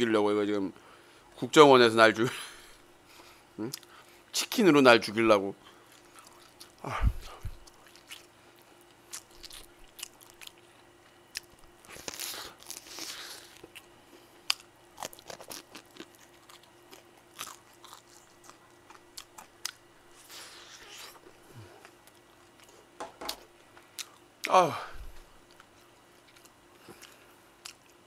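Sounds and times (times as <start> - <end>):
crunchy chewing of fried chicken: 5.6 - 23.0, 23.6 - 24.5, 25.4 - 28.0.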